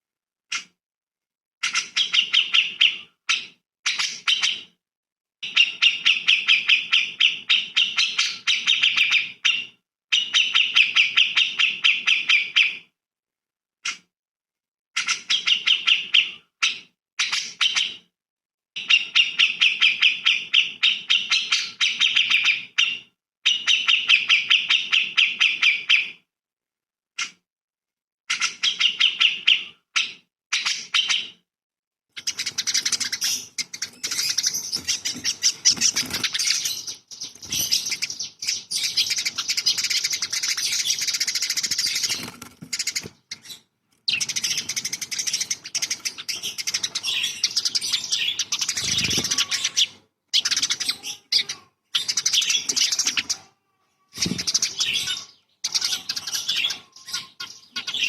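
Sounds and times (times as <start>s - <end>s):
songbird chattering trills: 32.2s - 53.4s.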